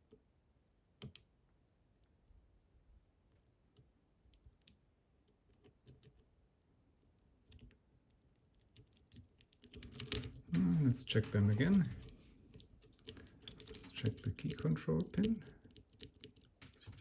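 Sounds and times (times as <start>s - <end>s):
lock pick clicking in lock: 8.8s - 10.4s.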